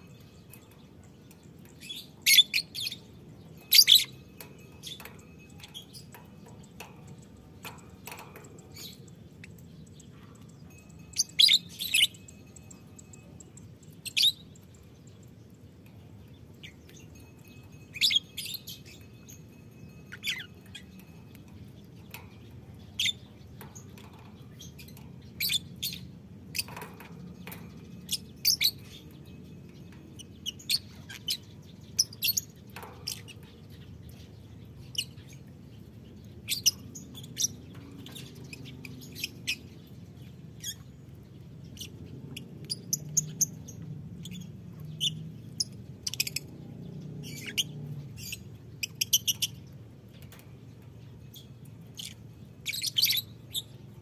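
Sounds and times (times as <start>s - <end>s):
low background hum: 0.0s - 54.0s
birds chirping shrilly: 51.2s - 54.0s.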